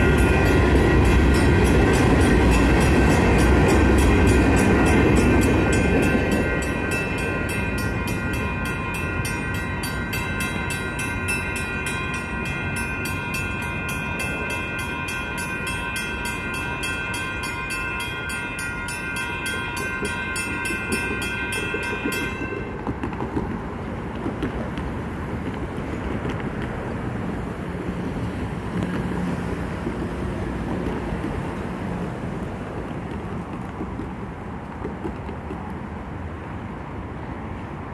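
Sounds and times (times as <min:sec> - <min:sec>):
crossing bells ringing: 0:00.0 - 0:22.9
freight train rumbling: 0:00.0 - 0:37.9.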